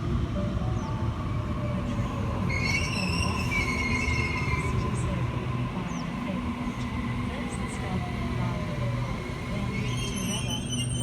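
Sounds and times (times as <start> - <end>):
electric train rumbling: 0.0 - 11.0
high metallic squeal: 2.5 - 4.7, 9.8 - 11.0.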